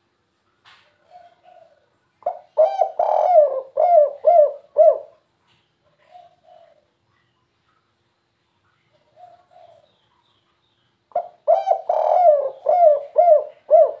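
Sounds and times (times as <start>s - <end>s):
dove cooing: 0.9s - 5.2s, 5.8s - 7.0s, 9.0s - 10.0s, 11.1s - 14.0s.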